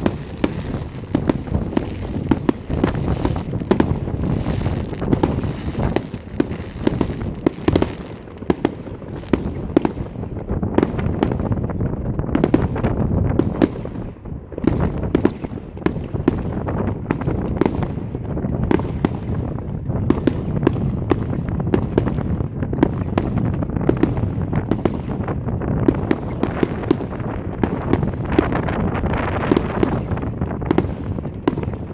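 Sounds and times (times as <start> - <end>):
firework shells bursting: 0.0 - 10.0.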